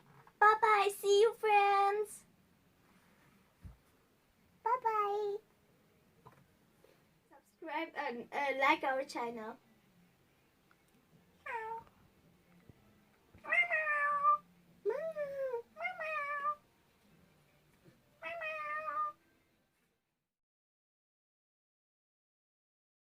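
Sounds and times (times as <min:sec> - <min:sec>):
cat meowing: 0:11.4 - 0:11.9, 0:13.4 - 0:14.4, 0:15.8 - 0:16.6, 0:18.2 - 0:19.2.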